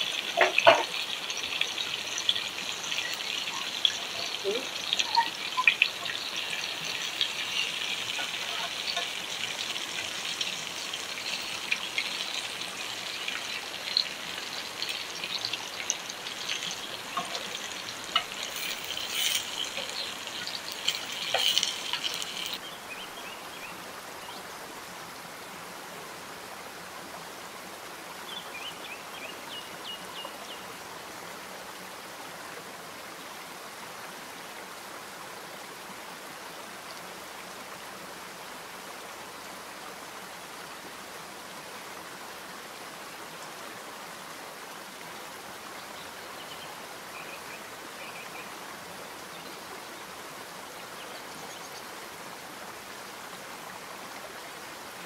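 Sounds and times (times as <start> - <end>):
chillies sizzling in hot oil: 0.0 - 22.6
steady hiss: 0.0 - 23.0.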